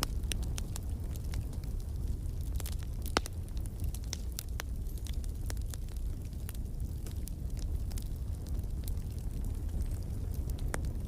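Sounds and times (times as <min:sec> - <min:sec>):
fire crackling: 0:00.0 - 0:11.0
low rumble of flames: 0:00.0 - 0:11.0
sharp pops from fire: 0:00.0 - 0:11.0.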